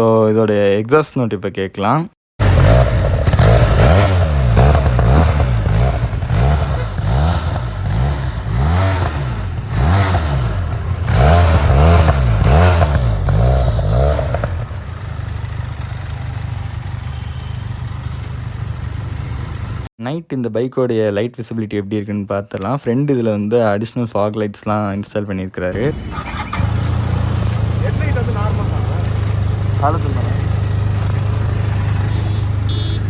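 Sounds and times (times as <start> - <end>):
motorcycle engine revving and idling: 2.4 - 19.9, 25.7 - 33.0.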